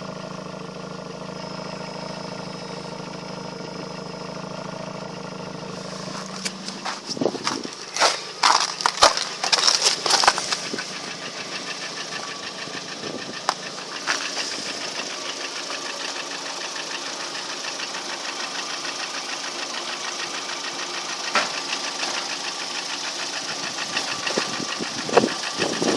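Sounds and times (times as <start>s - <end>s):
car engine idling with knocking: 0.0s - 25.9s
loud engine knocks: 6.3s - 10.9s, 21.3s - 22.2s.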